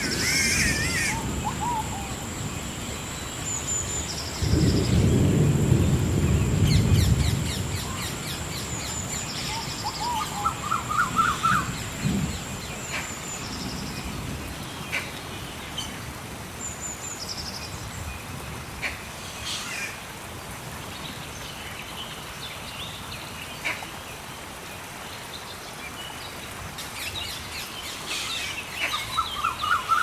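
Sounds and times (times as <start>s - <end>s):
thunder rumble: 0.0s - 14.7s
birds calling: 0.0s - 15.2s.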